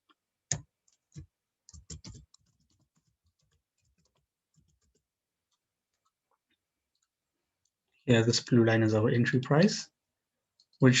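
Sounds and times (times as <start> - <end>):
computer keyboard typing: 0.5 - 5.0.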